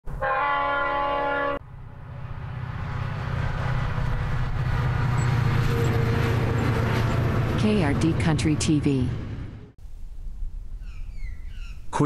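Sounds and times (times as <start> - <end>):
train horn chord: 0.1 - 1.7
train rumble: 0.4 - 9.8.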